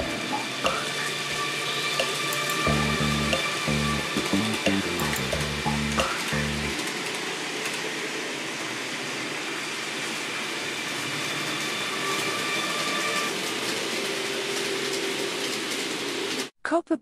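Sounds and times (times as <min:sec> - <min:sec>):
train rushing rail noise: 0:00.0 - 0:16.4
faint whine: 0:02.0 - 0:06.8.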